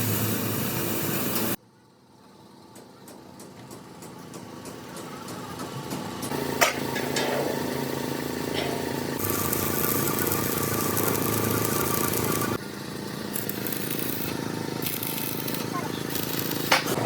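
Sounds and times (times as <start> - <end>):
engine running: 4.0 - 17.0
loud hissing: 9.2 - 12.6.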